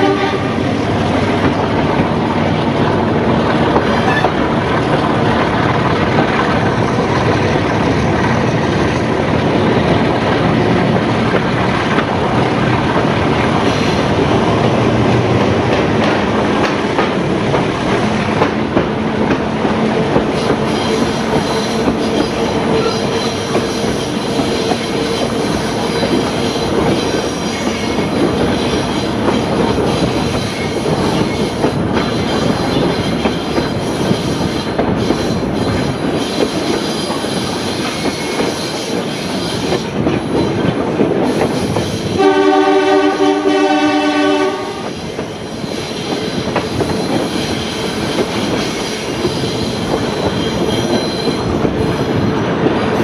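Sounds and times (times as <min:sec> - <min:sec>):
locomotive horn: 0:00.0 - 0:00.8, 0:42.2 - 0:44.9
train wheels on rails: 0:00.0 - 0:53.0.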